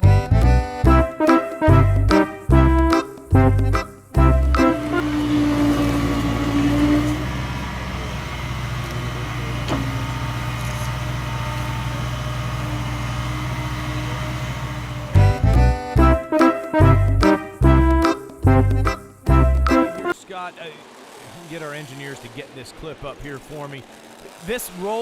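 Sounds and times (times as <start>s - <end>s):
held higher tone: 0.0s - 5.7s, 15.2s - 20.2s
vehicle engine running: 3.6s - 16.1s.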